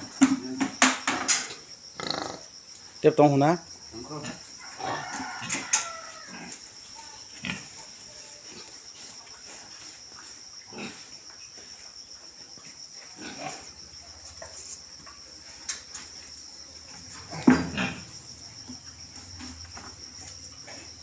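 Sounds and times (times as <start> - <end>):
insects chirring: 0.0 - 21.0
pigs grunting: 1.9 - 2.5, 3.9 - 9.8, 10.6 - 11.3, 13.0 - 13.9, 17.0 - 19.5.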